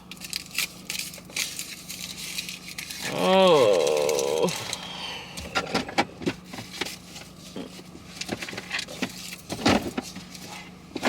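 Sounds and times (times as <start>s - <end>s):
clicks knocks and rustles in car: 5.4s - 11.0s.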